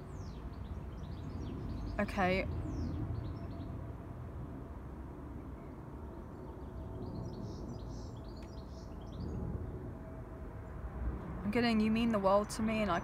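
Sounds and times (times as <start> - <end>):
small birds chirping: 0.0 - 3.8, 5.6 - 9.5.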